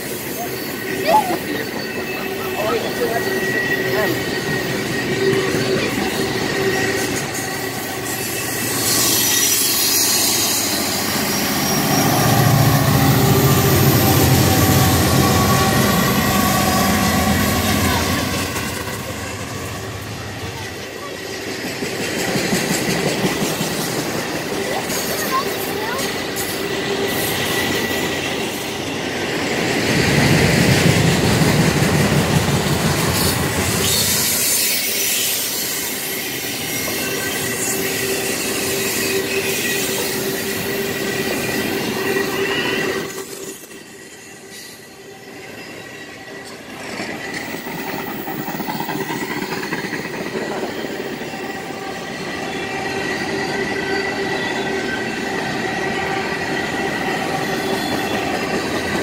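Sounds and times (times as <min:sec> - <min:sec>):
high-pitched wheel squeal: 0:00.0 - 0:19.8, 0:33.7 - 0:58.5
train wheels rumbling on rails: 0:00.0 - 0:59.0.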